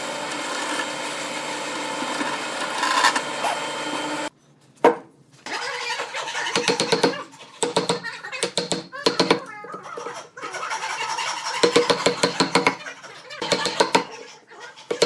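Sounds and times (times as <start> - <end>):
power tool motor running: 0.0 - 4.3.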